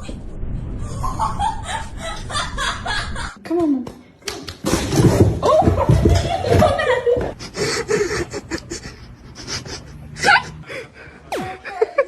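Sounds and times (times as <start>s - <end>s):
people laughing: 0.9s - 3.4s, 5.4s - 12.0s.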